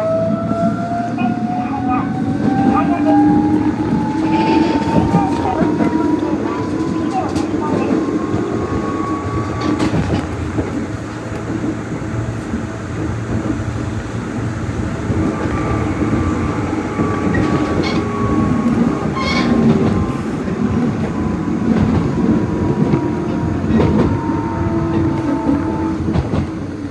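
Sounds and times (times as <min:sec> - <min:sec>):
train rumble: 0:00.0 - 0:26.9
wheels clattering over rail joints: 0:13.3 - 0:24.2
high squeal: 0:14.7 - 0:20.4.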